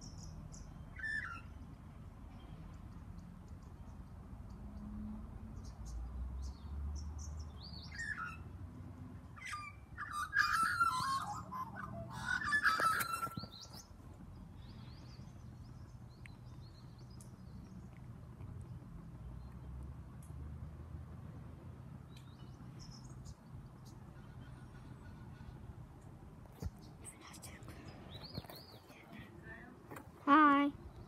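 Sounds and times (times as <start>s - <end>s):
birds chirping: 5.6s - 20.3s, 21.9s - 31.0s
harsh bird chattering calls: 9.4s - 13.9s.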